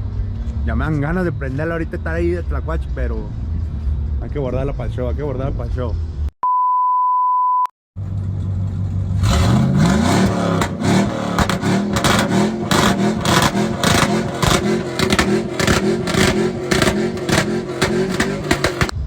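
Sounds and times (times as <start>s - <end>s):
engine idling and revving: 0.0s - 6.3s, 8.0s - 19.0s
censor beep: 6.4s - 7.7s
engine crackle: 8.0s - 19.0s.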